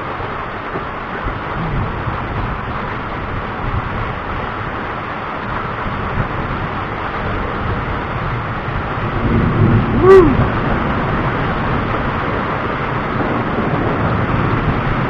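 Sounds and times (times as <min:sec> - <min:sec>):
rain hissing: 0:00.0 - 0:15.0
wind: 0:00.0 - 0:15.0
low thunder rumble: 0:01.1 - 0:15.0.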